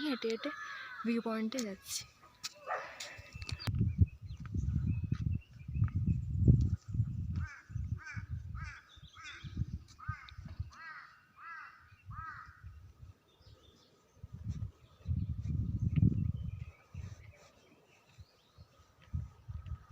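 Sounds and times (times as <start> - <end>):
crow cawing: 0.4 - 1.2, 10.0 - 12.6
gusty low rumble: 3.5 - 10.8, 14.2 - 17.0.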